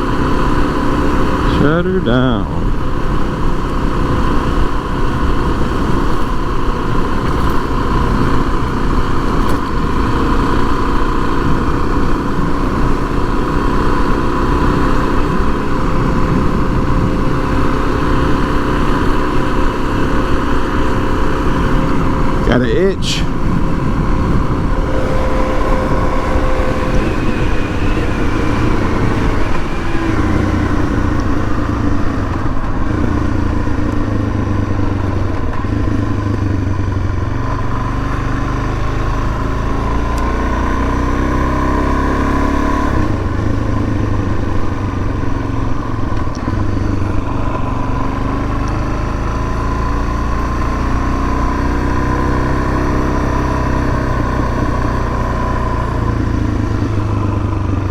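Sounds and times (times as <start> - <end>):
motorcycle engine revving: 0.0 - 57.9
wind on microphone: 14.2 - 22.5, 23.2 - 33.8.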